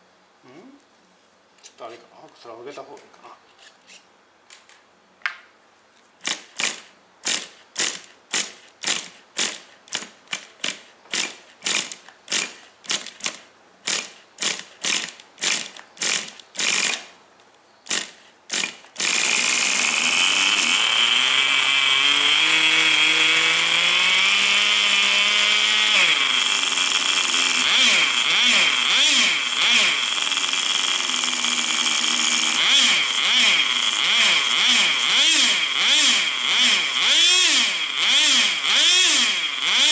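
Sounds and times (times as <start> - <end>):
small engine being cranked: 6.2 - 17.1, 17.9 - 39.9
small engine buzzing and revving: 13.9 - 17.1, 17.9 - 39.9.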